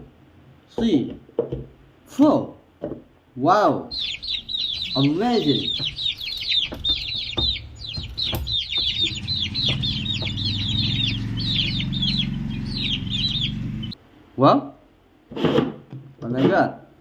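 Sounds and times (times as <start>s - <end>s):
chicks peeping: 3.9s - 14.0s.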